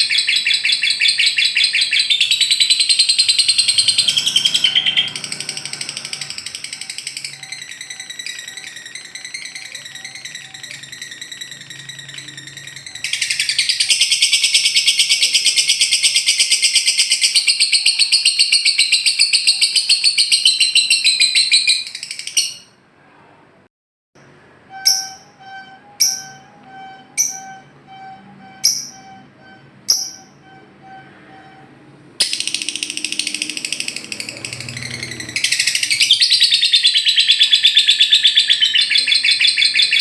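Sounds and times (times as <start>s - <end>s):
rapid trilled bird chatter: 0.0s - 22.7s, 32.2s - 40.0s.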